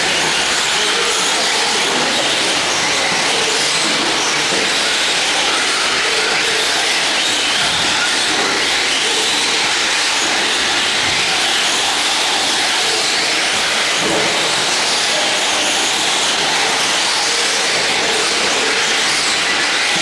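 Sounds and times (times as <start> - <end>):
radio-controlled trucks racing: 0.0 - 20.0.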